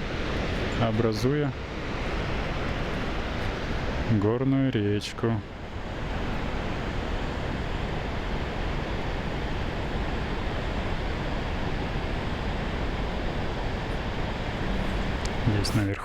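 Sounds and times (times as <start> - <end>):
river and waterfall rushing: 5.4 - 16.0.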